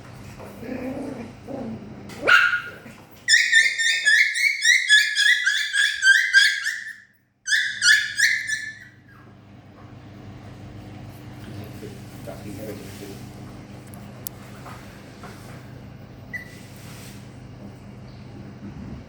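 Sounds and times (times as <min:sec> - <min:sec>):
puppy yelping and yipping: 0:02.2 - 0:09.2, 0:16.3 - 0:16.6.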